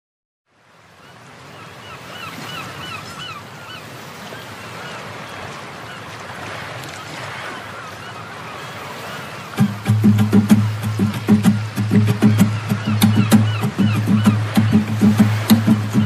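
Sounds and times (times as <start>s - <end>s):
bird calls: 1.0s - 16.0s
steady rushing noise: 9.6s - 16.0s.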